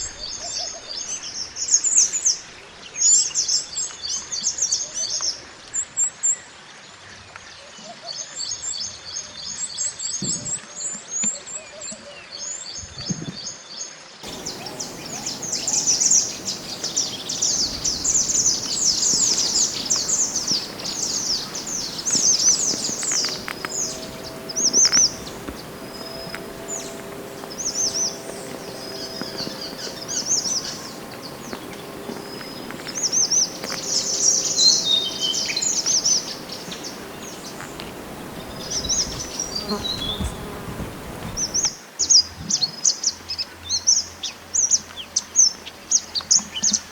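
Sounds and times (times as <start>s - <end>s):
songbird chattering trills: 14.2s - 41.7s.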